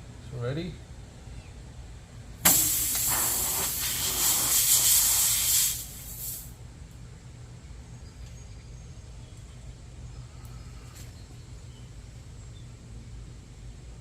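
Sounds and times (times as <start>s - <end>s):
air hissing out of a tire: 2.4s - 6.6s.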